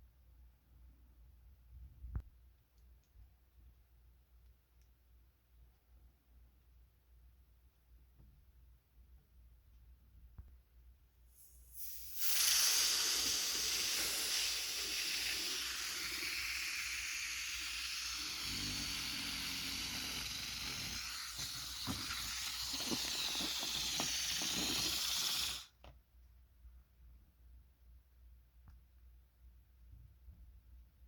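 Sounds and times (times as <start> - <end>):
air hissing through balloon valve: 11.3 - 25.8.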